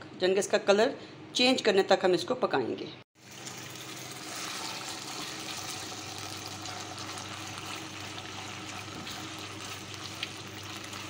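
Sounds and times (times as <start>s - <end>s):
chicken sizzling in hot oil: 3.2s - 11.0s
spatula stirring in wok: 6.7s - 11.0s.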